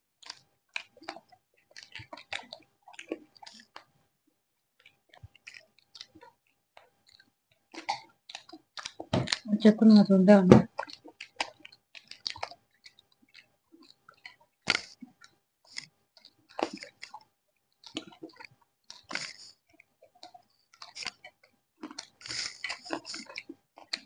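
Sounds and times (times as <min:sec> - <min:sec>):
chewing crunchy fried chicken: 0:00.2 - 0:24.0.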